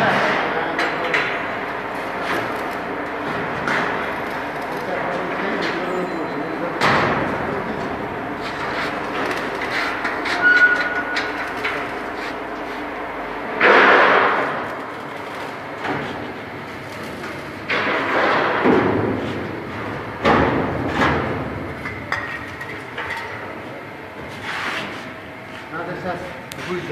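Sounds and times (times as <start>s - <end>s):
knocks and clatters: 13.6s - 23.5s.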